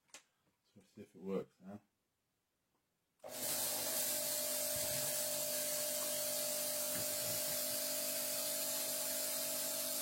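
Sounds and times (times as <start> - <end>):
fog machine hissing: 3.3 - 10.0.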